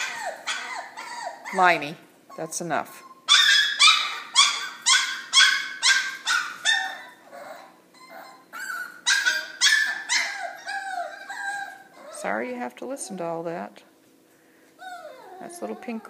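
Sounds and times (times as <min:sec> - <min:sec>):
puppy yapping: 0:00.0 - 0:12.3, 0:14.8 - 0:16.0.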